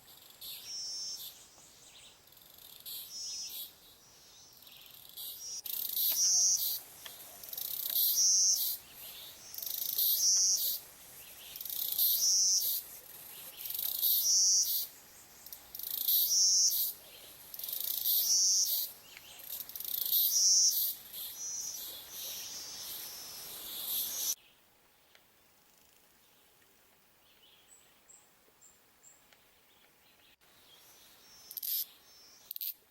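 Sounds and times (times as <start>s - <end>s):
insect buzzing call: 4.5s - 12.9s, 13.6s - 24.4s, 31.3s - 32.8s.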